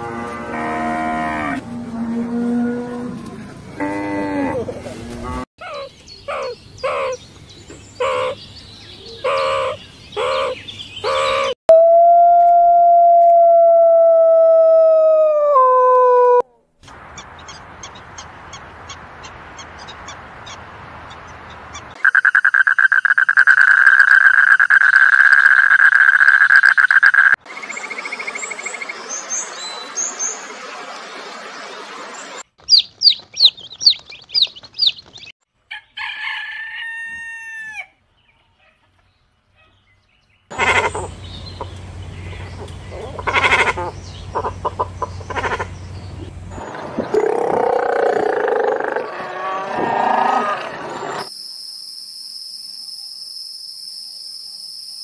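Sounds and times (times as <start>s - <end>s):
bird chirping: 5.6s - 11.6s, 32.6s - 35.4s, 38.2s - 47.4s
chicks peeping: 32.6s - 35.3s
faint regular chirps: 32.6s - 35.4s
fowl calls: 40.5s - 41.2s, 42.9s - 45.7s.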